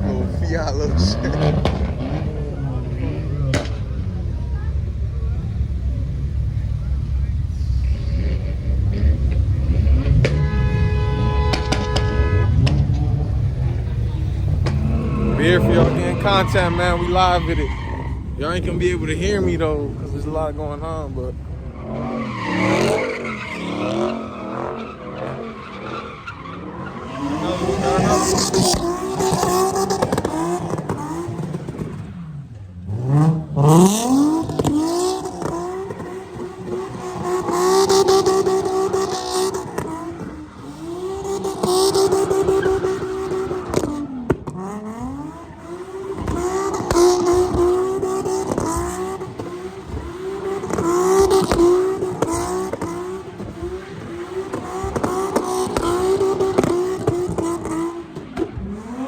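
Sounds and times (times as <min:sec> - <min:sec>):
car engine revving high: 0:00.0 - 0:59.0
tyres screeching: 0:06.1 - 0:44.2.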